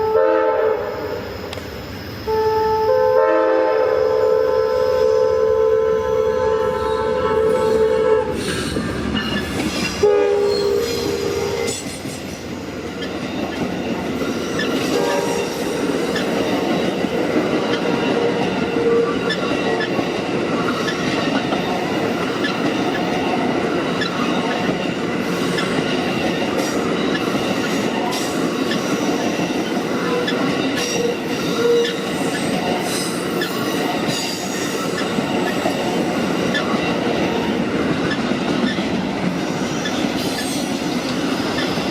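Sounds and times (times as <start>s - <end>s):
locomotive horn: 0.0s - 1.2s, 2.3s - 8.5s, 10.0s - 11.8s, 14.9s - 15.6s
train wheels on rails: 0.0s - 41.9s.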